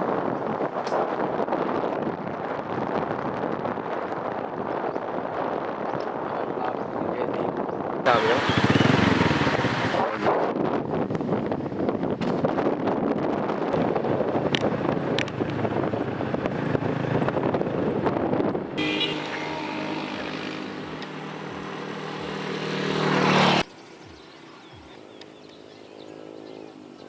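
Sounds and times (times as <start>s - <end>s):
wind buffeting microphone: 0.0s - 18.8s
vehicle engine running: 8.1s - 10.3s.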